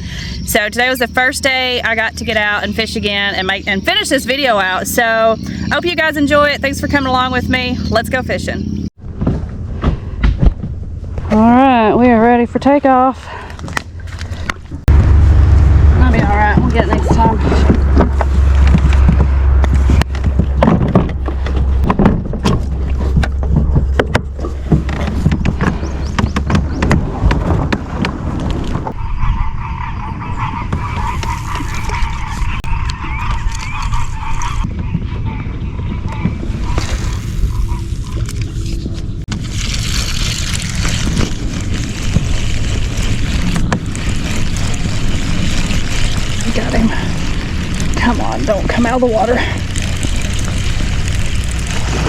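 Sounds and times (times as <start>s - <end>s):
pedal kayak low rumble: 0.0s - 52.0s
wind buffeting microphone: 0.0s - 52.0s
knocks and clicks from hull: 16.5s - 29.0s.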